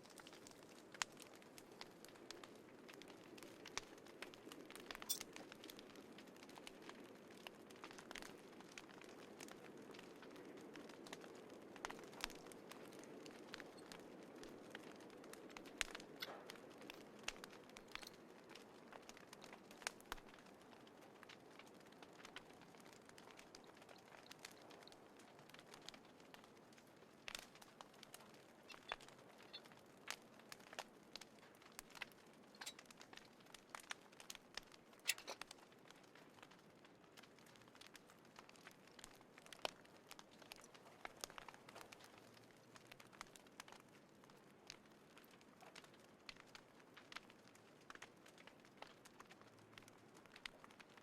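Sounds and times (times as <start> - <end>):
wood fire crackling and popping: 0.0 - 51.0.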